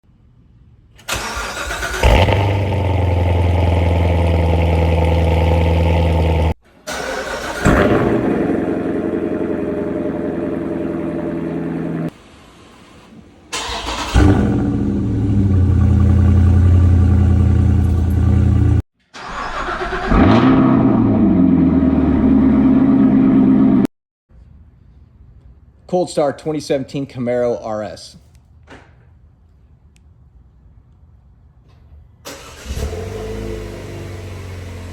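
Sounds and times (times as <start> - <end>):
sports car engine starting: 1.0 - 12.2, 13.5 - 23.9, 32.2 - 34.9
car engine idling: 1.2 - 12.1, 13.6 - 18.8.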